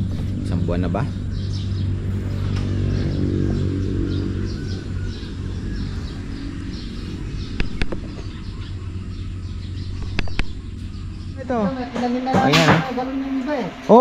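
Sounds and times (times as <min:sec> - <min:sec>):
small birds chirping: 0:00.0 - 0:14.0
steady low hum: 0:00.0 - 0:14.0
sharp clicks: 0:07.5 - 0:08.2, 0:10.0 - 0:10.6.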